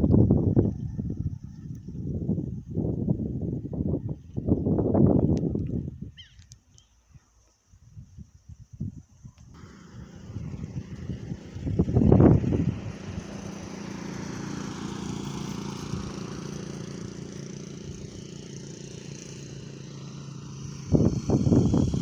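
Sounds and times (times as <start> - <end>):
engine running: 9.6 - 22.0.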